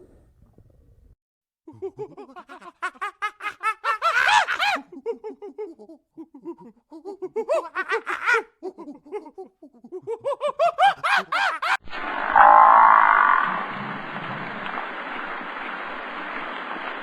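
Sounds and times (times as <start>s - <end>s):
animal chattering calls: 12.4s - 13.6s.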